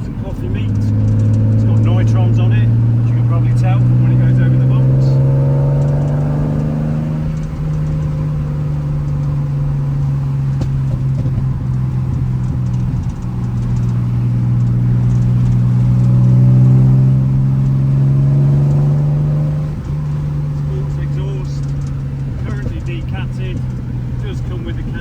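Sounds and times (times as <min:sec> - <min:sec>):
car engine running under load: 0:00.0 - 0:25.0.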